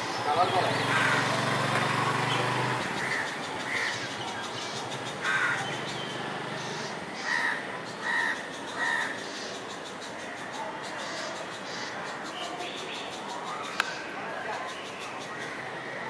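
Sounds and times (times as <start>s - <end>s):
bird calling: 2.2s - 14.1s.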